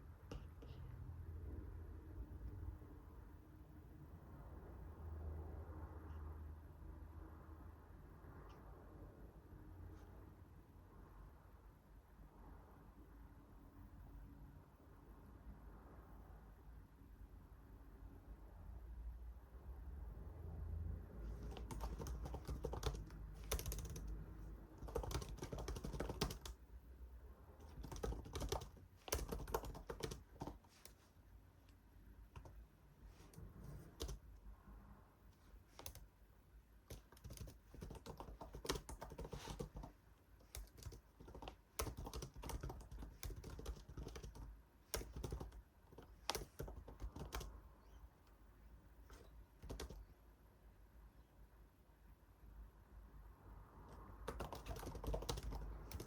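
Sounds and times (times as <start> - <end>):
keyboard keystroke clicks: 27.7 - 30.6, 40.5 - 47.5.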